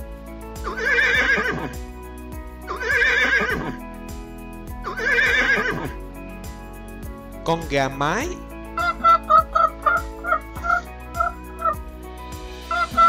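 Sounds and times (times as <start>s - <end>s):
horse whinnying: 0.6s - 1.8s, 2.7s - 3.8s, 4.8s - 6.0s.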